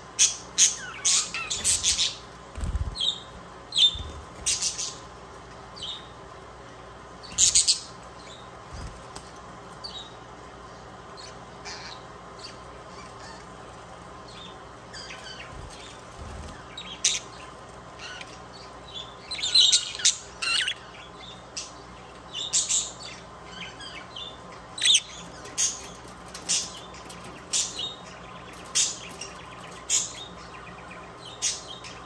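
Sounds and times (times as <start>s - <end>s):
budgerigar chirps and squawks: 11.2s - 13.5s.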